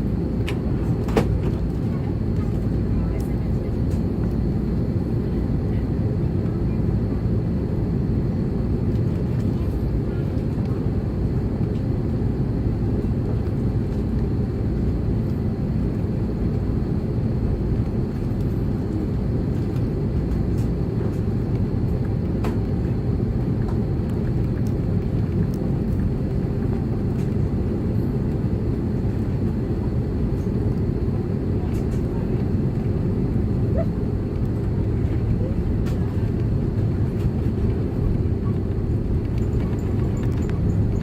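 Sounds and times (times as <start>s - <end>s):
airplane cabin rumble: 0.0s - 41.0s.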